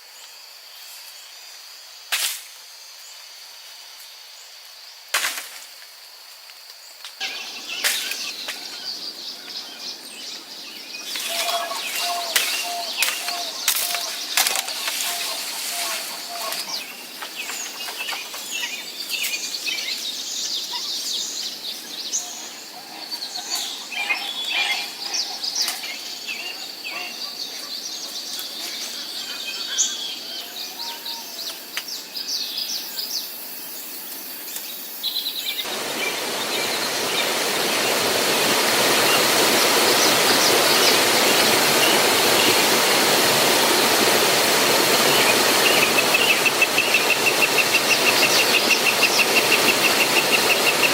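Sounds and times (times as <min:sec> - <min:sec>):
small birds chirping: 0:06.9 - 0:50.9
rush of falling water: 0:07.2 - 0:25.0, 0:35.6 - 0:50.9.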